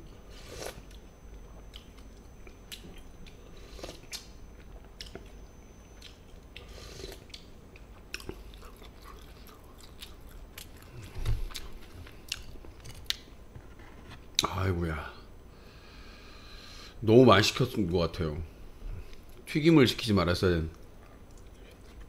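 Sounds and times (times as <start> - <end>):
person chewing and biting food: 0.3 - 13.3.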